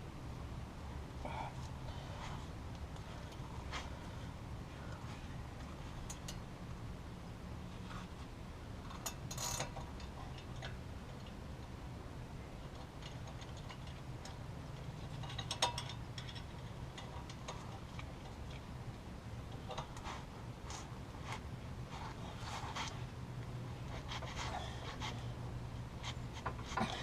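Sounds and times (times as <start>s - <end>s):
low steady hum: 0.0s - 27.0s
light metal clinks: 12.6s - 18.7s.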